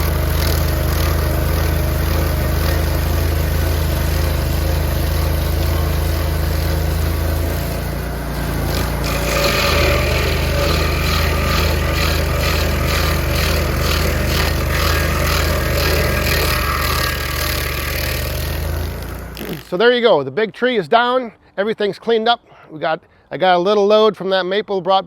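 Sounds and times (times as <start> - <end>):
engine humming: 0.0 - 19.7.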